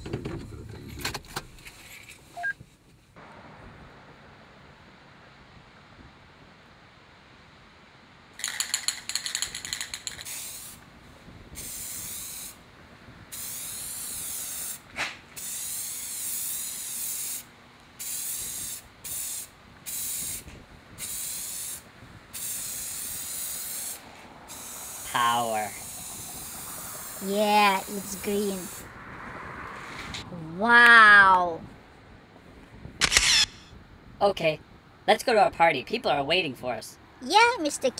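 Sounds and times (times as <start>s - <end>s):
spray can hissing: 8.4s - 10.8s, 11.6s - 12.6s, 13.3s - 14.8s, 15.4s - 28.9s
spray can rattling: 8.4s - 10.8s, 22.4s - 25.0s.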